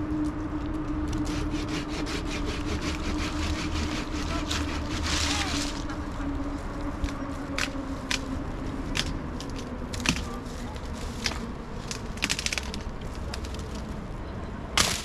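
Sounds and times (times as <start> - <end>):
dry wood cracking and snapping: 2.8 - 6.0, 7.0 - 14.0, 14.8 - 15.0.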